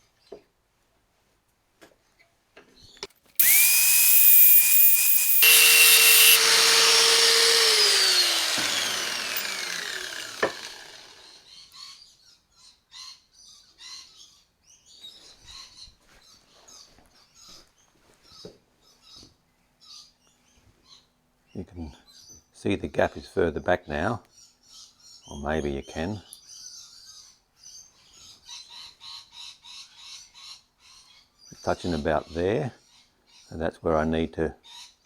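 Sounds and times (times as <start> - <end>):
cut-off wheel grinding steel: 3.4 - 11.4
power tool winding down: 3.4 - 11.4.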